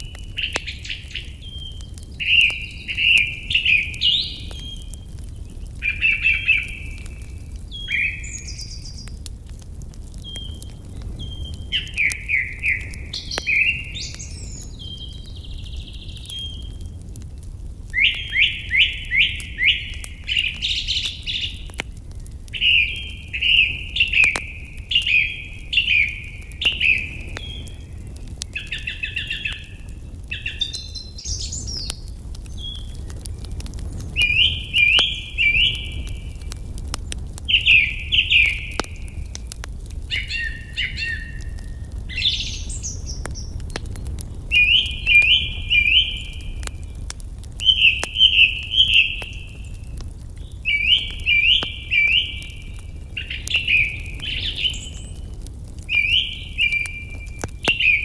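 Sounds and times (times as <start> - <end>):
songbirds chirping: 0.0 - 58.0
faint clicks: 38.7 - 40.1.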